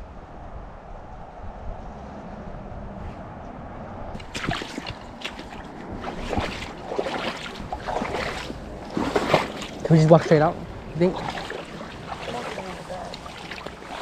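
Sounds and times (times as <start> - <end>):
wind rumble on microphone: 0.0 - 14.0
footsteps splashing through water: 4.2 - 14.0.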